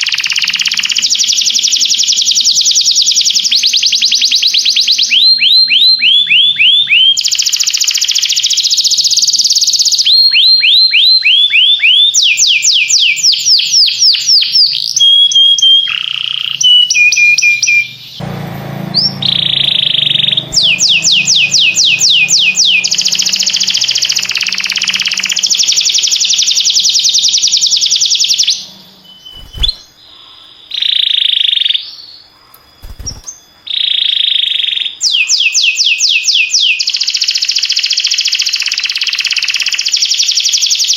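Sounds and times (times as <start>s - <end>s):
canary singing in fast trills: 0.0s - 40.9s.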